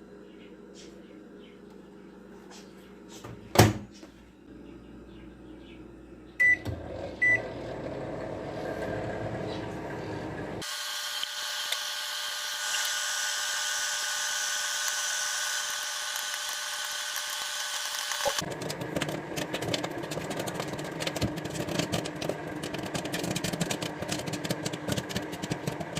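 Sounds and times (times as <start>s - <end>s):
microwave oven humming: 0.0s - 25.9s
microwave keypad beeping: 6.4s - 7.4s.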